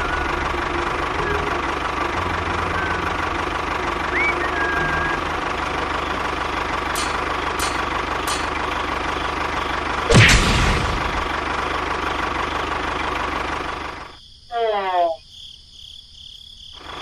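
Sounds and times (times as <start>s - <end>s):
tractor engine idling: 0.0s - 14.2s
sharp clicks: 7.0s - 8.7s.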